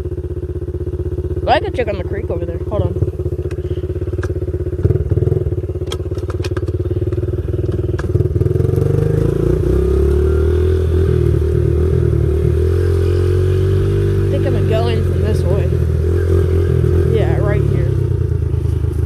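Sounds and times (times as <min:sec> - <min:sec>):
small motorbike engine running: 0:00.0 - 0:19.0
sharp clicks and clatters: 0:05.8 - 0:08.2.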